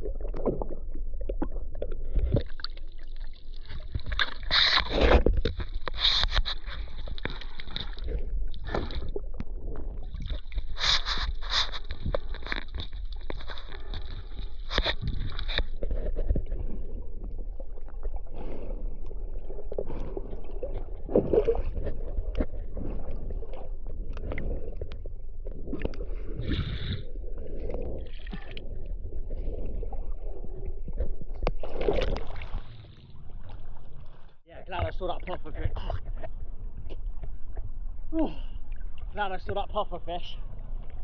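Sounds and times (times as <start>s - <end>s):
sea water sloshing and gurgling: 0.0s - 41.0s.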